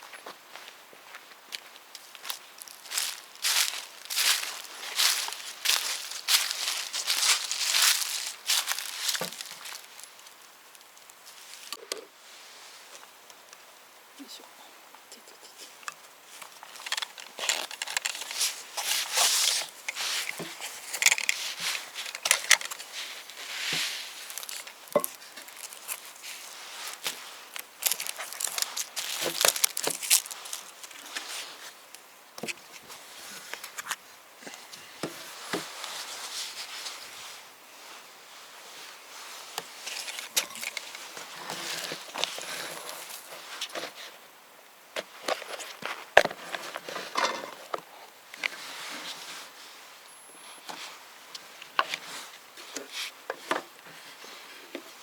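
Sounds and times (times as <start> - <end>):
rustling and crinkling: 0.0 - 13.4, 15.4 - 44.3, 44.9 - 55.0.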